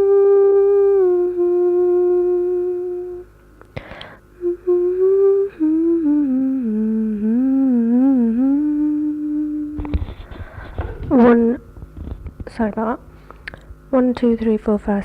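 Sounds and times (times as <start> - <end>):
person humming: 0.0 - 11.6
short breath: 3.8 - 4.3, 10.3 - 11.0.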